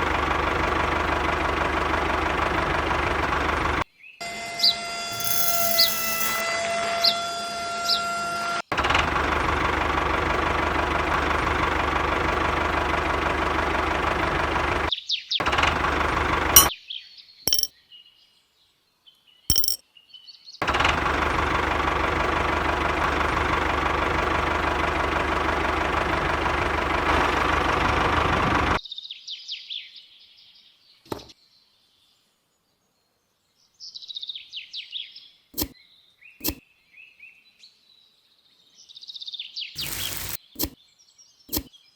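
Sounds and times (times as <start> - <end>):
small motor running: 4.6 - 6.4, 39.8 - 40.4.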